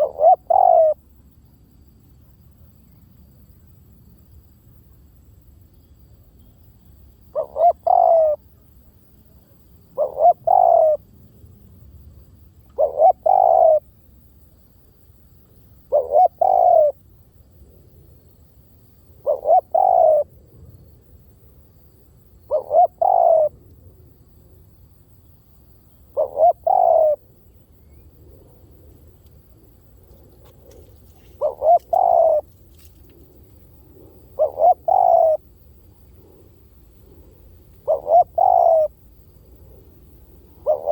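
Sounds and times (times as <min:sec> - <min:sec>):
dove cooing: 0:00.0 - 0:01.0, 0:07.3 - 0:08.6, 0:09.9 - 0:11.0, 0:12.7 - 0:13.9, 0:15.9 - 0:17.0, 0:19.2 - 0:20.3, 0:22.5 - 0:23.6, 0:26.1 - 0:27.3, 0:30.3 - 0:33.0, 0:33.6 - 0:40.9.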